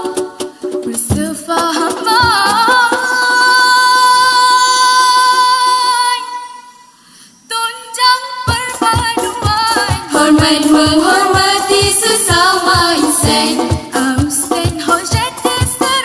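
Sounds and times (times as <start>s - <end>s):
person singing a cappella: 0.0s - 6.8s, 7.5s - 16.0s
deep drum hit: 9.0s - 15.3s.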